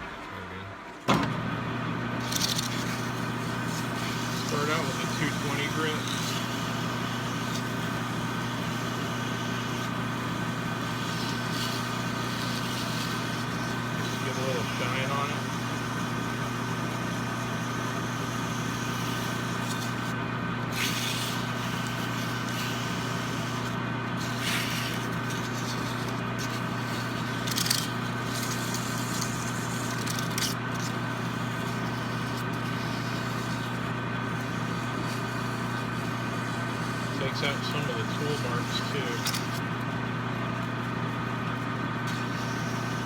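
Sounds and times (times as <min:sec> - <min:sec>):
lathe motor humming: 0:00.0 - 0:43.0
sandpaper scraping on metal: 0:02.2 - 0:39.6, 0:42.1 - 0:43.0.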